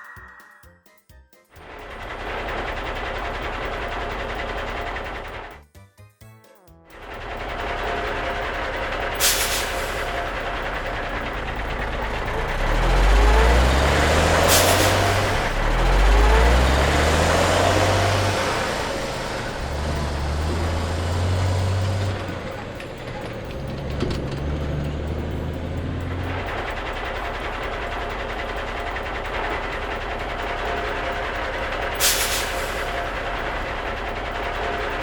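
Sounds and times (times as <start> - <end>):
deep truck engine hum: 1.6 - 5.7, 6.7 - 35.0
air brake hisses: 9.2 - 10.4, 14.3 - 15.7, 31.9 - 33.7.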